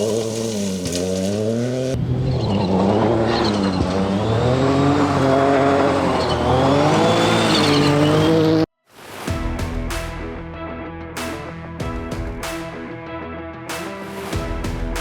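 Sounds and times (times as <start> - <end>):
rally car engine revving hard: 0.0 - 8.7
music: 8.9 - 15.0.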